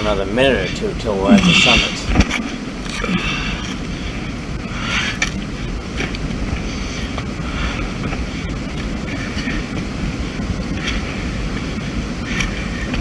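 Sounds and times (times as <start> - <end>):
wind rumbling on microphone: 0.0 - 13.0
person breathing hard: 1.2 - 2.2, 2.9 - 5.3, 6.6 - 9.9, 12.2 - 13.0.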